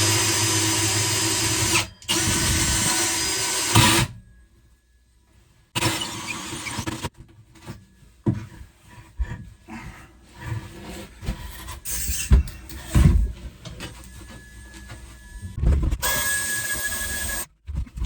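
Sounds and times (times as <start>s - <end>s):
power drill boring a hole: 0.0s - 4.1s, 5.8s - 7.1s, 15.4s - 17.5s.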